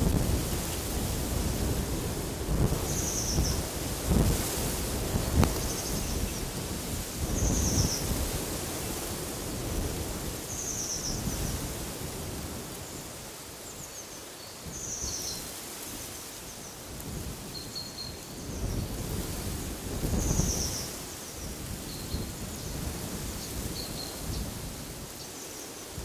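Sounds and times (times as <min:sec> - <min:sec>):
wind buffeting microphone: 0:00.0 - 0:13.0, 0:18.2 - 0:25.2
wind gusting through forest: 0:00.0 - 0:26.0.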